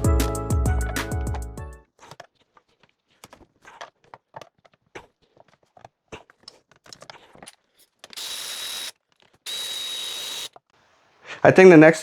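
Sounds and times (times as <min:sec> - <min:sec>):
tools clicking and knocking: 0:02.1 - 0:10.8.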